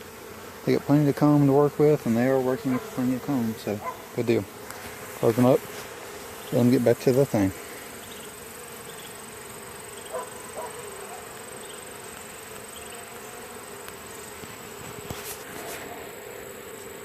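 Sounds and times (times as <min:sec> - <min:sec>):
honey bees buzzing: 0:00.0 - 0:17.0.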